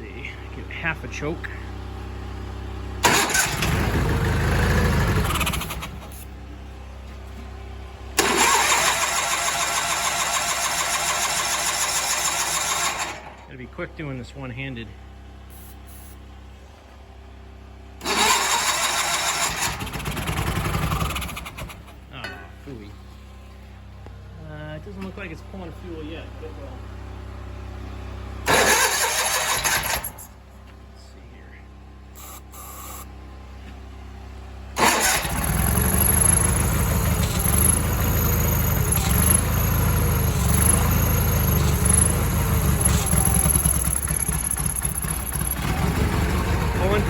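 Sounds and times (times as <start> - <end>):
garden tractor engine cranking and running: 3.0 - 14.8, 18.0 - 23.9, 28.4 - 30.8, 32.2 - 33.0, 34.7 - 47.0.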